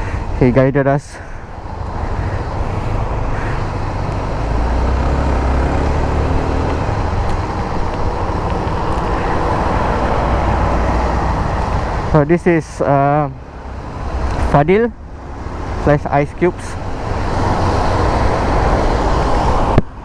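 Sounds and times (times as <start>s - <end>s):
motorcycle engine: 1.4s - 12.0s.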